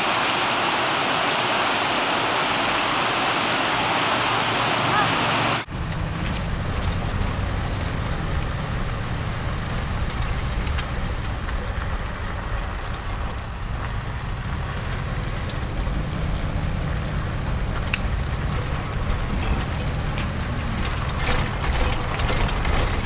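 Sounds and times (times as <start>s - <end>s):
car interior engine rumble: 5.7s - 23.0s
light rattles and clicks: 5.8s - 23.0s.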